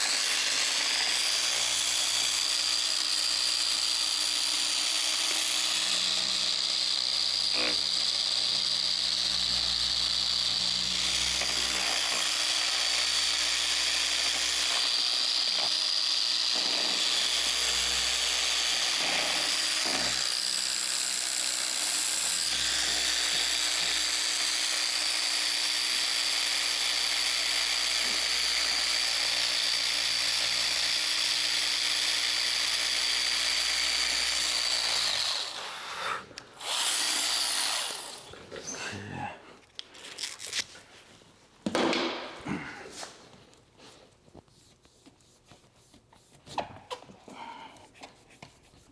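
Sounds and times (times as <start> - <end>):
electric polisher whining: 0.0 - 38.8.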